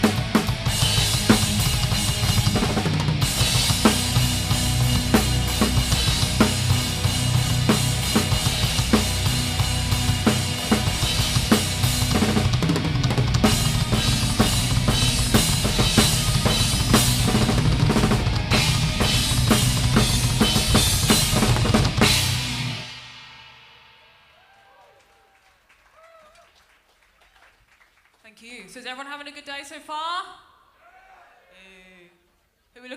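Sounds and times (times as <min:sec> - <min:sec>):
low bass line: 0:00.0 - 0:22.8
live band playing: 0:00.0 - 0:23.4.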